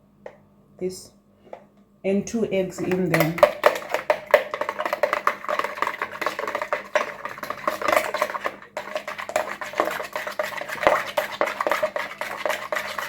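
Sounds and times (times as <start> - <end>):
whisk clicking against bowl: 2.8 - 13.0.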